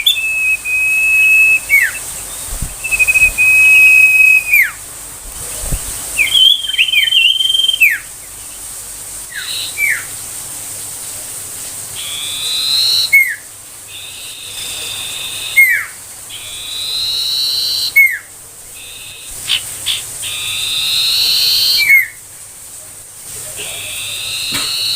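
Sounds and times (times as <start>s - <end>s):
bird singing whistled notes: 0.0s - 4.8s, 5.5s - 8.6s, 9.3s - 10.1s, 12.0s - 22.2s, 23.8s - 24.9s.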